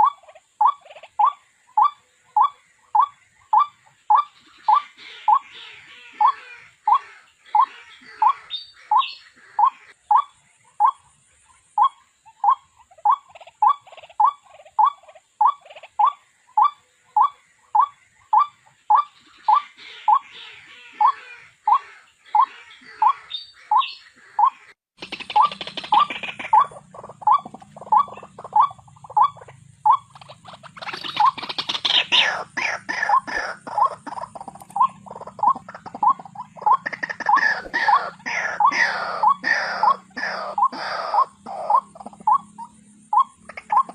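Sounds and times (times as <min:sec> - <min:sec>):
harsh chattering: 0:24.4 - 0:43.9.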